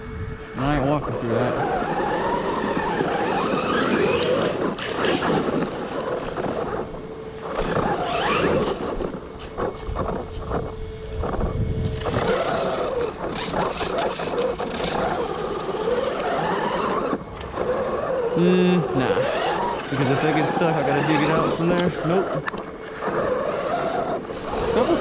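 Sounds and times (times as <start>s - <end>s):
electric motor whining: 0.0s - 25.0s
short clicks and crunches: 19.0s - 24.5s.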